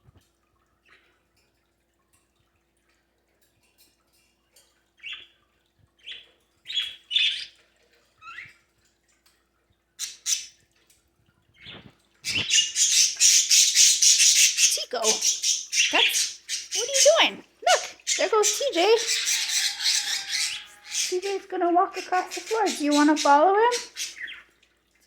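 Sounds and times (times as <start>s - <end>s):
parakeets chirping and squawking: 6.0s - 7.6s, 11.6s - 24.5s.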